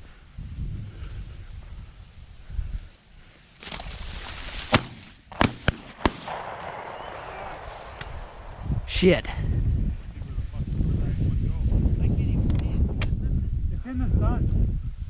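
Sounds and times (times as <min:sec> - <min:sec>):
shotgun shots: 0:04.7 - 0:09.6.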